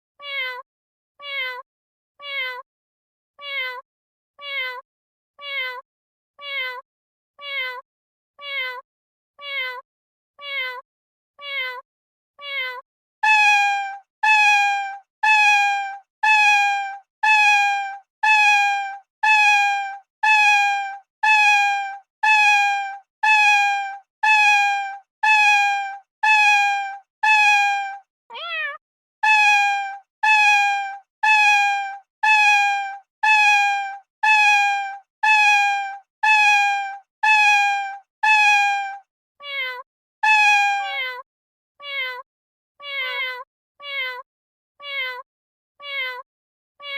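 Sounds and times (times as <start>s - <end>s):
cat meowing: 0.2s - 0.6s, 1.2s - 1.6s, 2.2s - 2.6s, 3.4s - 3.8s, 4.4s - 4.8s, 5.4s - 5.8s, 6.4s - 6.8s, 7.4s - 7.8s, 8.4s - 8.8s, 9.4s - 9.8s, 10.4s - 10.8s, 11.4s - 11.8s, 12.4s - 31.6s, 38.2s - 38.7s, 39.4s - 41.2s, 41.8s - 42.2s, 42.8s - 44.2s, 44.8s - 45.2s, 45.8s - 46.2s
cat wavering call: 12.4s - 41.2s, 42.8s - 44.1s.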